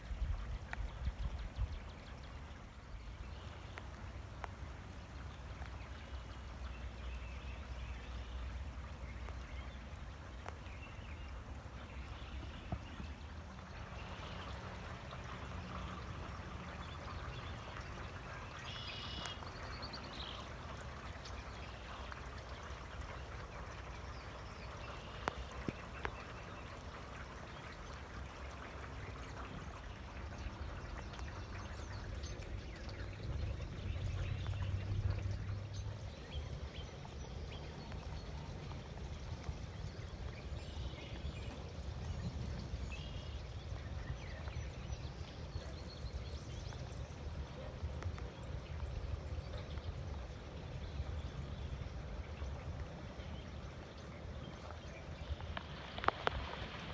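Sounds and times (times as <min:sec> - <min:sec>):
steady rain falling: 0:00.0 - 0:43.6, 0:53.8 - 0:56.9.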